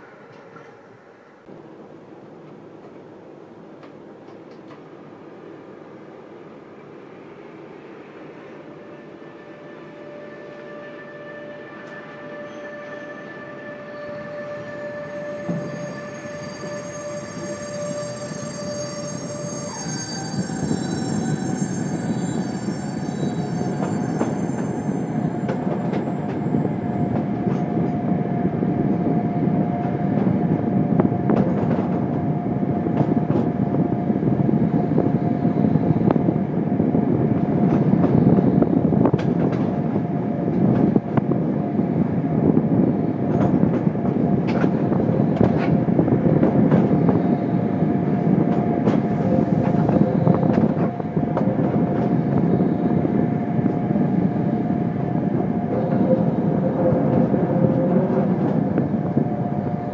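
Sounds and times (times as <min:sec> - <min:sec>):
train wheels rumbling on rail: 0:00.0 - 0:59.9
whine shifting in pitch: 0:08.4 - 0:31.3.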